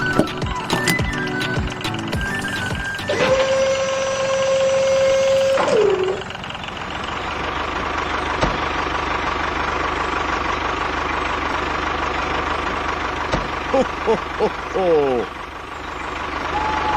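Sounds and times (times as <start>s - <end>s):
small motor whining: 0.0s - 6.3s
high tone bending down: 0.0s - 8.7s, 15.6s - 16.9s.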